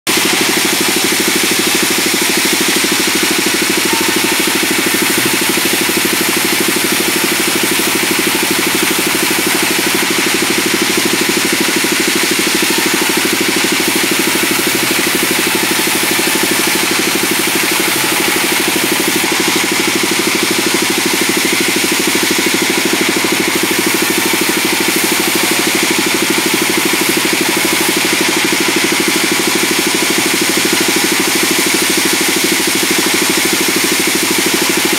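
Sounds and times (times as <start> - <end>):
band saw running: 0.0 - 34.9.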